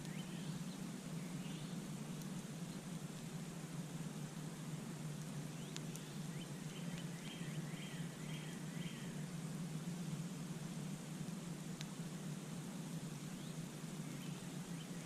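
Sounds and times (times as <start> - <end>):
campfire crackling: 0.0 - 15.0
fire popping: 1.9 - 4.4, 5.0 - 7.3.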